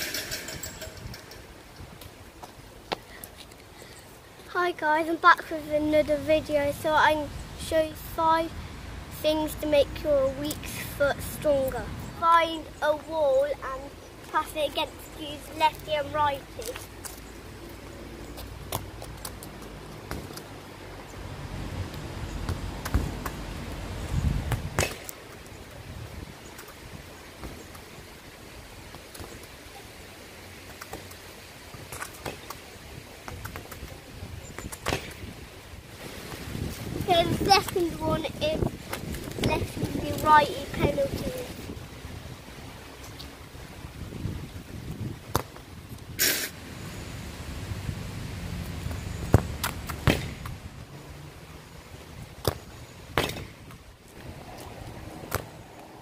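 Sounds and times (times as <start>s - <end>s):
low wind rumble: 0.0s - 28.9s, 32.6s - 56.0s
football kicks off a wall: 50.0s - 50.5s.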